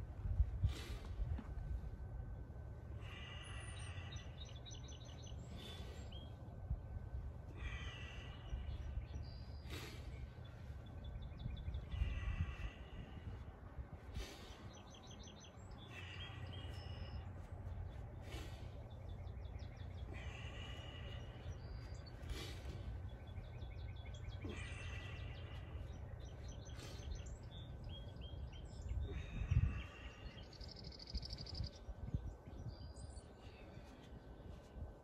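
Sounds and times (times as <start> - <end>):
steady low rumble: 0.0 - 35.0
small birds singing: 1.8 - 35.0.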